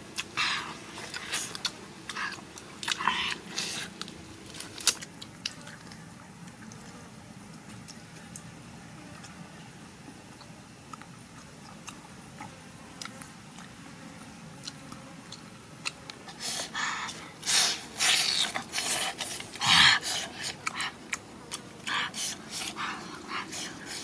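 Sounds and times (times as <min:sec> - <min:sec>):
person chewing close up: 0:00.2 - 0:07.0, 0:10.9 - 0:13.8, 0:14.6 - 0:16.2, 0:18.0 - 0:24.0
rough noise handling food: 0:00.7 - 0:07.0.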